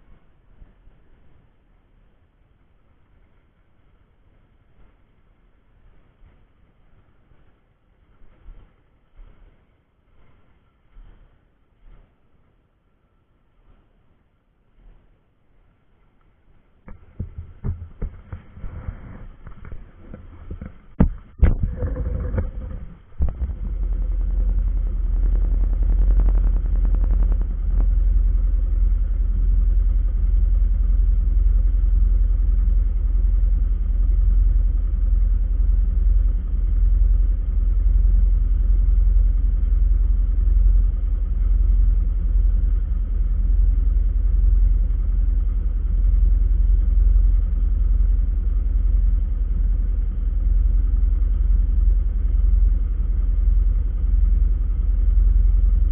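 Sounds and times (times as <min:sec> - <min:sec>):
vehicle rumbling: 0:16.0 - 0:55.9
sharp knocks and bumps: 0:16.9 - 0:28.0.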